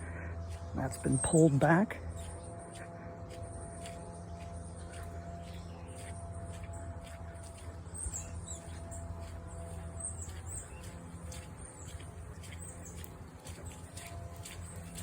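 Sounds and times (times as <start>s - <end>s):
low steady hum: 0.0s - 15.0s
small birds chirping: 0.0s - 15.0s
water dripping from trees: 4.9s - 15.0s.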